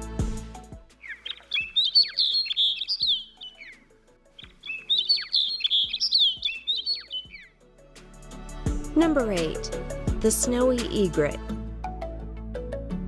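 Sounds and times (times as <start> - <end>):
faint background music: 0.0 - 13.0
bird singing: 1.0 - 7.6.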